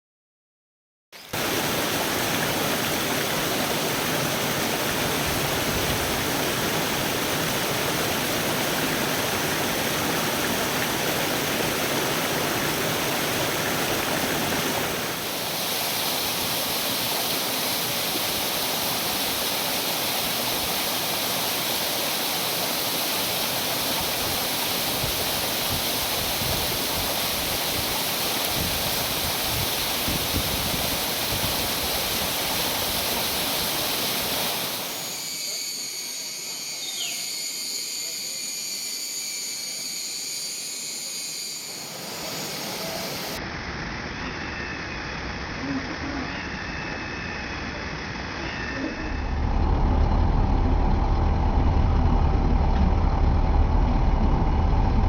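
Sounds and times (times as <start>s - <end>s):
water rushing: 1.2s - 36.7s, 40.9s - 44.2s.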